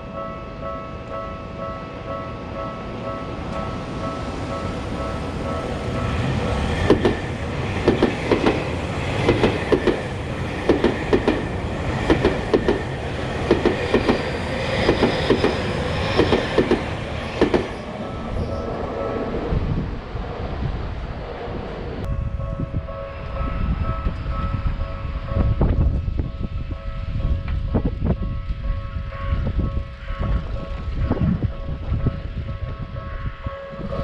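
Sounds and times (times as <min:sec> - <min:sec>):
train rumble: 0:00.0 - 0:34.0
train wheels clacking on rail joints: 0:04.4 - 0:18.0.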